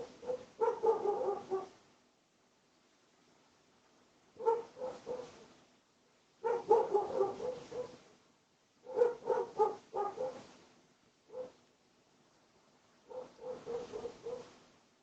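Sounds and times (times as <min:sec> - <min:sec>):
dog barking: 0:00.0 - 0:01.8, 0:04.4 - 0:05.5, 0:06.4 - 0:08.0, 0:08.8 - 0:10.5, 0:11.3 - 0:11.6, 0:13.0 - 0:14.5.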